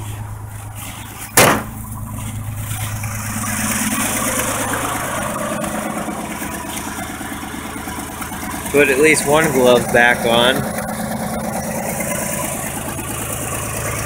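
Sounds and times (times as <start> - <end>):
truck engine idling: 0.0 - 14.0
sharp knock: 1.4 - 1.8.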